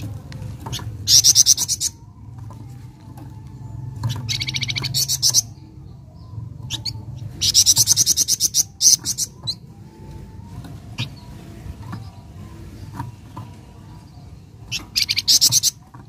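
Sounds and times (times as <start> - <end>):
bird fast chattering trill: 6.7 - 9.6.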